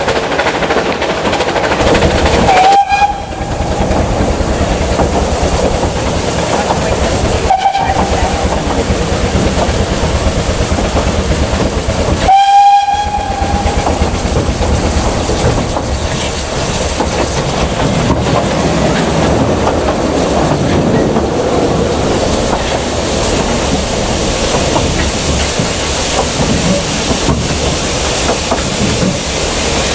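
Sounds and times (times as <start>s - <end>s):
train wheels rumbling and rattling: 0.0s - 29.9s
steam whistle blast: 2.4s - 3.5s, 7.5s - 8.2s, 12.2s - 13.9s.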